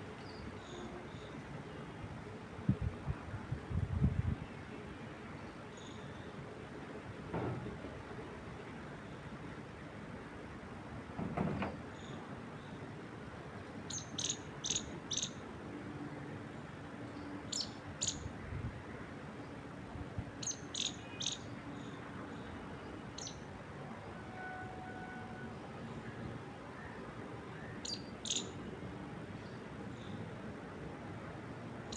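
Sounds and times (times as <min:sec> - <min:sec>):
wind through trees: 0:00.0 - 0:11.1, 0:11.8 - 0:31.9
bird chirping: 0:27.8 - 0:28.5.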